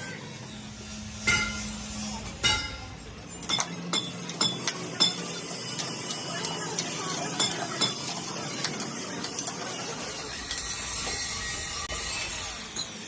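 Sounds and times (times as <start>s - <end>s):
ringing metal clanks: 1.1s - 6.6s
sharp metal clinks: 2.4s - 6.7s.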